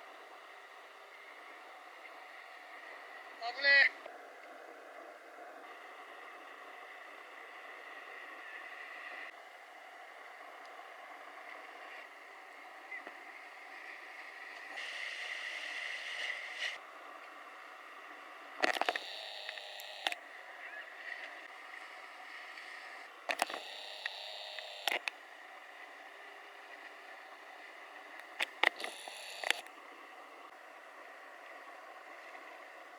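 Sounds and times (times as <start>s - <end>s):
wind: 0.0s - 32.9s
surf hissing: 14.7s - 16.8s.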